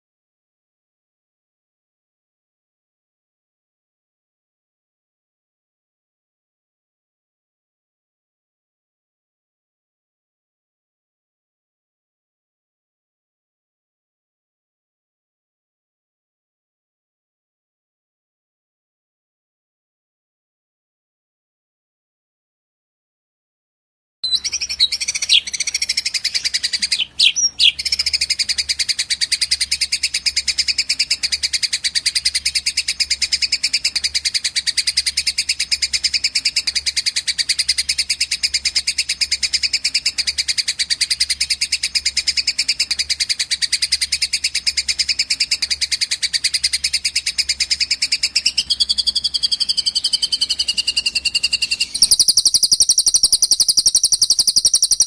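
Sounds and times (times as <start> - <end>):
rapid high bird trill: 24.2 - 55.0
whistled bird phrase: 24.2 - 55.0.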